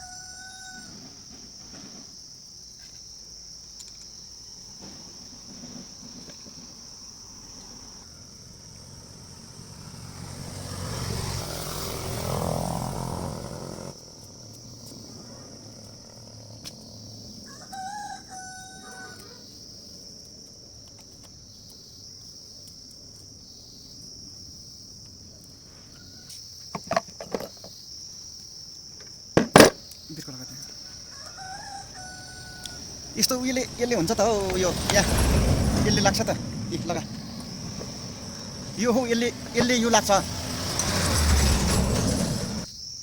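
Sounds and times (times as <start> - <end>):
rooster crowing: 0.0 - 1.3, 17.4 - 19.5, 30.6 - 42.6
insects chirring: 0.0 - 43.0
sharp knocks: 29.4 - 29.8.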